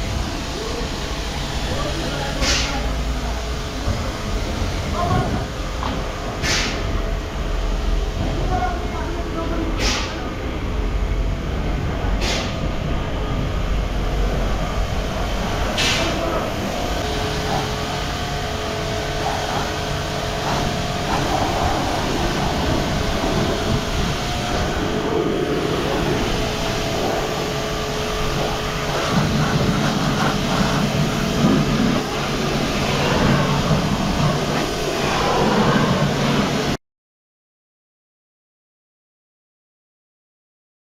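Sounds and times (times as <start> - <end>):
water pump motor humming: 0.0 - 36.8
water spray rushing: 14.2 - 36.8.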